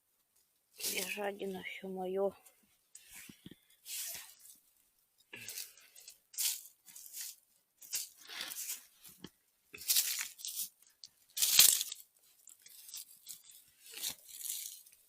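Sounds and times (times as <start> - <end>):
footsteps crunching dry leaves: 0.8 - 1.3, 5.4 - 9.1, 9.8 - 10.8, 11.4 - 15.0.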